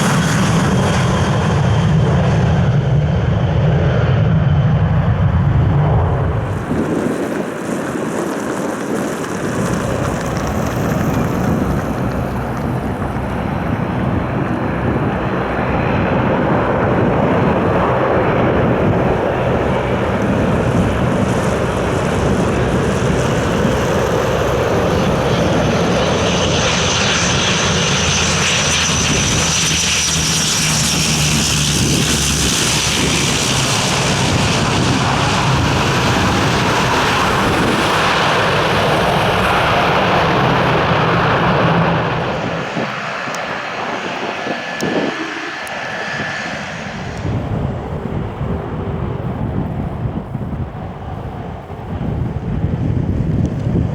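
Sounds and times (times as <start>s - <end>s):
high turbine whine: 0.0s - 53.9s
turboprop engines running: 0.0s - 53.9s.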